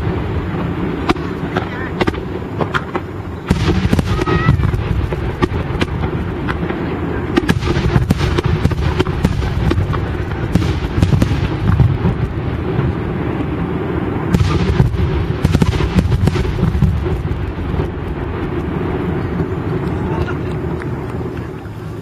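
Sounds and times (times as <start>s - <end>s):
fireworks booming: 0.0s - 22.0s
sharp firework cracks: 0.0s - 22.0s.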